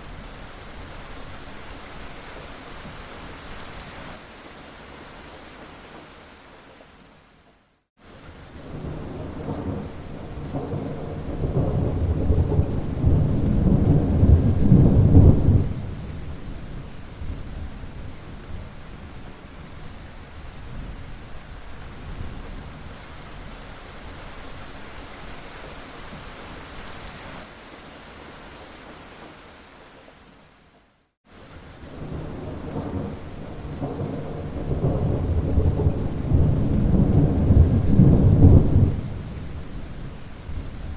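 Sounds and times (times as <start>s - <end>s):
steady rain: 0.0s - 40.9s
rolling thunder rumble: 8.6s - 18.8s, 31.9s - 40.9s.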